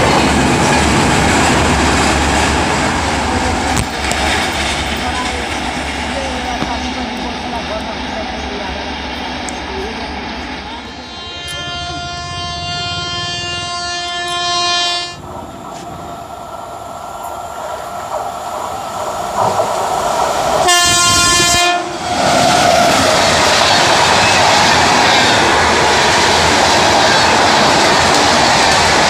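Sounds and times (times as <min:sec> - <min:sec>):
train wheels rattling on rails: 0:00.0 - 0:29.0
train horn: 0:10.8 - 0:15.2, 0:20.6 - 0:22.0.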